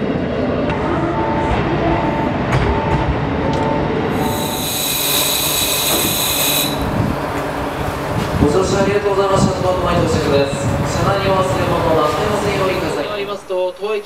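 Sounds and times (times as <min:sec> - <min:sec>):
train wheels rumbling on rail: 0:00.1 - 0:14.0
high-pitched wheel squeal: 0:04.2 - 0:06.9.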